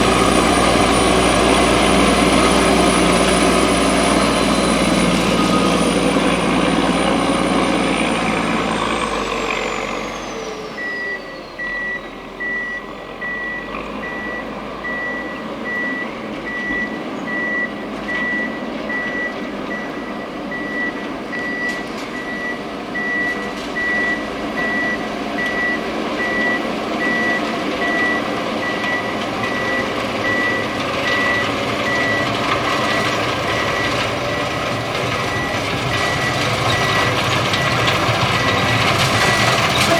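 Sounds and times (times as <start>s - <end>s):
diesel engine running: 0.0s - 39.9s
reverse alarm beeping: 10.7s - 39.9s.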